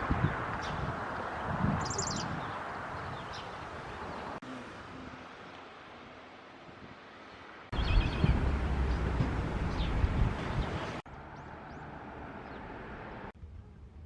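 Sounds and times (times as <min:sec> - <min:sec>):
low rumbling outdoor noise: 0:00.0 - 0:14.0
high bird chirps: 0:01.8 - 0:03.6, 0:07.7 - 0:09.0.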